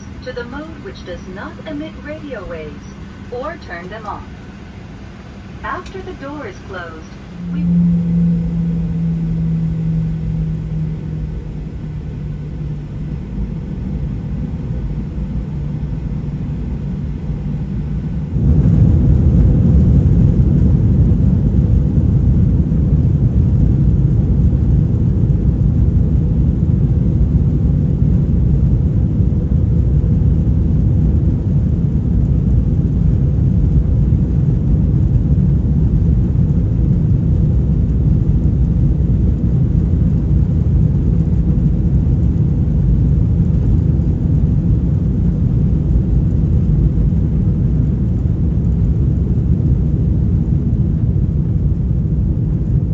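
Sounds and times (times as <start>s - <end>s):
airplane cabin rumble: 0.0s - 52.9s.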